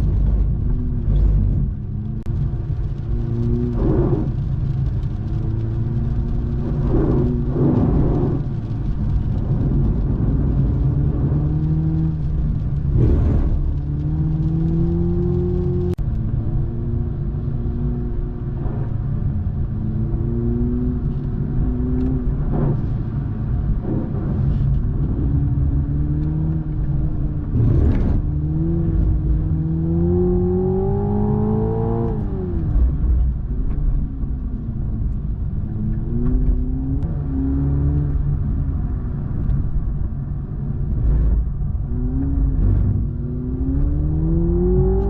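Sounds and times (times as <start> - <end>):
tyres rumbling on wet surface: 0.0 - 17.6
car engine revving: 0.0 - 45.0.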